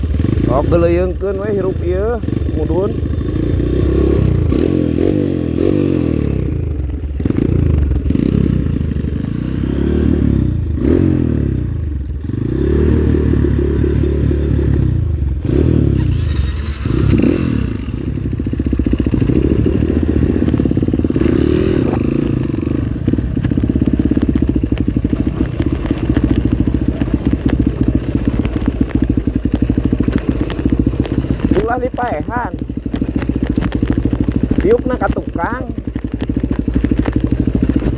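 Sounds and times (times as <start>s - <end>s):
motorcycle engine revving: 0.0s - 37.9s
knocks and clatter: 21.7s - 37.9s.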